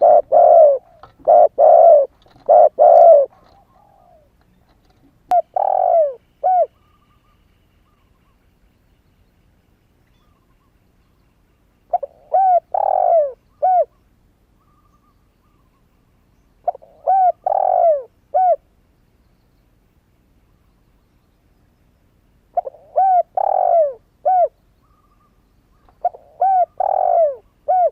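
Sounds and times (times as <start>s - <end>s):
dove cooing: 0.0s - 4.3s, 5.3s - 8.0s, 11.9s - 14.0s, 16.6s - 18.6s, 22.5s - 25.2s, 25.8s - 27.9s.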